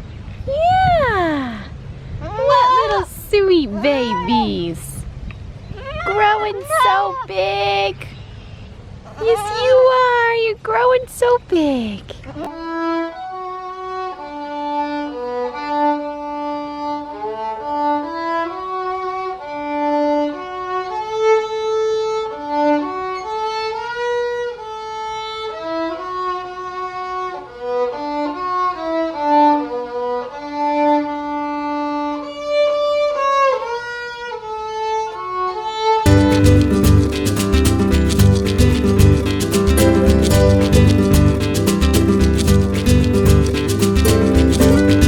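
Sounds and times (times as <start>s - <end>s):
solo violin melody: 12.5s - 45.0s
strummed guitar music: 36.1s - 45.0s.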